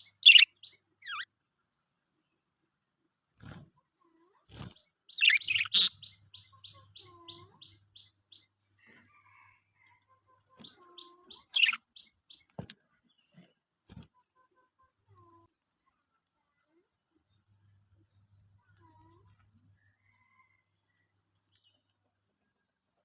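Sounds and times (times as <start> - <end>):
budgerigars chirping: 0.0 - 1.2, 5.1 - 8.1, 10.6 - 12.4.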